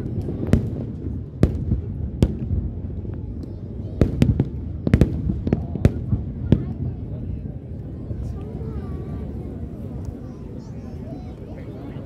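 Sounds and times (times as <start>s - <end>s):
fireworks bursting: 0.0s - 11.5s.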